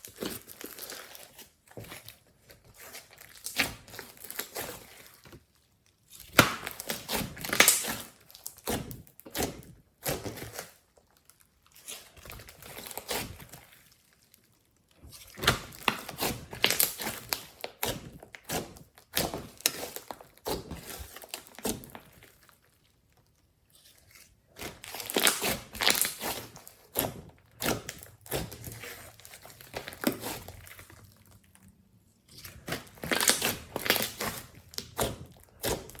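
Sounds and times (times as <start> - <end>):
slime crackling and popping: 0.0 - 36.0.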